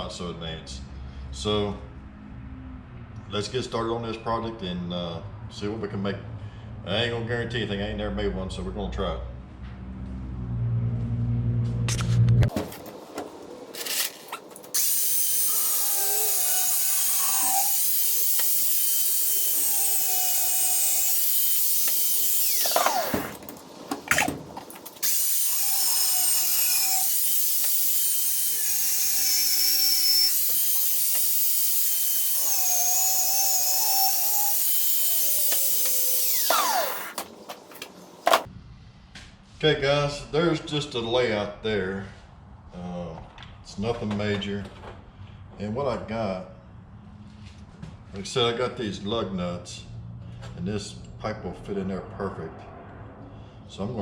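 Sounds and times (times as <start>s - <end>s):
angle grinder cutting steel: 13.8s - 37.7s.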